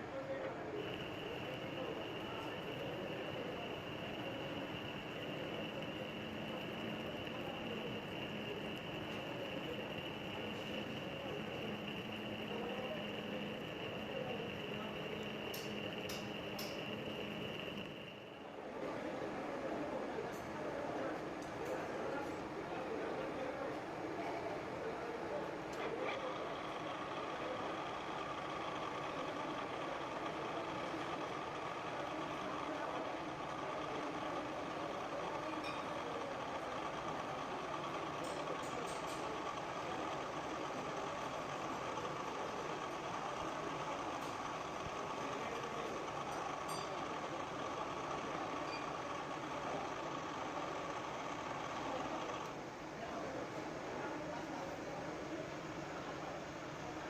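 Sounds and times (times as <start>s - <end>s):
metal lathe whining: 0.8s - 18.5s.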